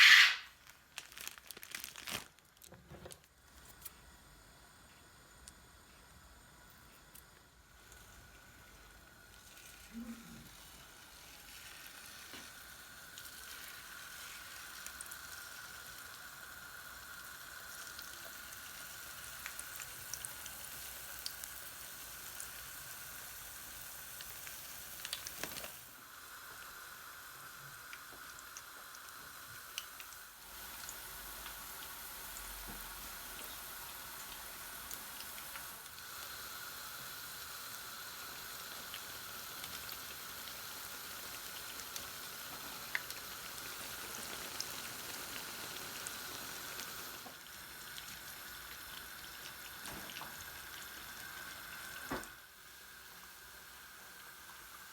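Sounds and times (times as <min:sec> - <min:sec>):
hot oil sizzling: 0:00.0 - 0:02.3, 0:03.0 - 0:54.9.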